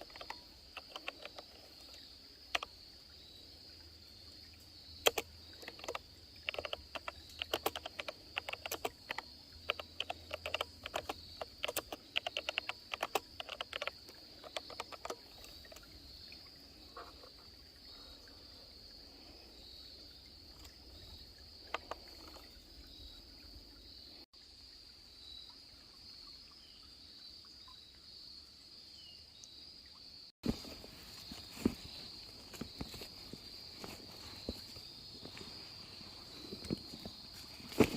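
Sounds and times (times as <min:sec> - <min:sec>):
sharp clicks: 0:00.0 - 0:01.6, 0:05.0 - 0:15.9
high-pitched insect chorus: 0:00.0 - 0:37.9.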